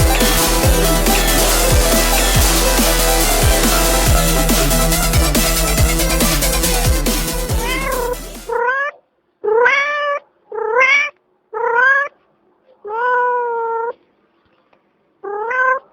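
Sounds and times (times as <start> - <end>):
electronic music: 0.0 - 8.6.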